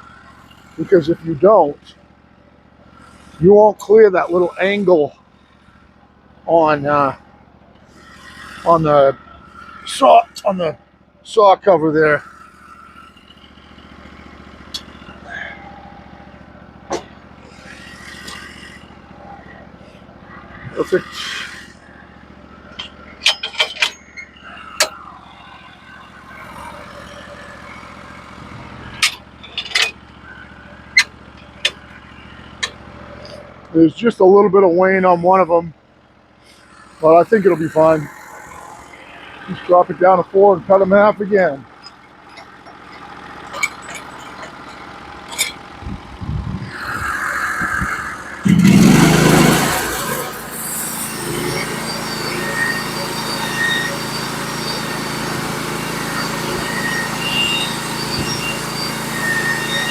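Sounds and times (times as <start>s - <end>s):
sawmill engine idling: 0.0s - 59.9s
sharp knocks and clanks: 16.9s - 17.2s, 22.8s - 24.0s.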